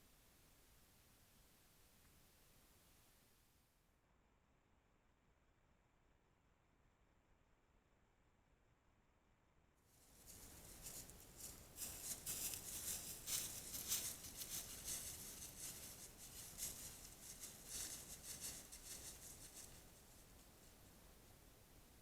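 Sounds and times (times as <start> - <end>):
close rustling and crackling: 10.0 - 20.8.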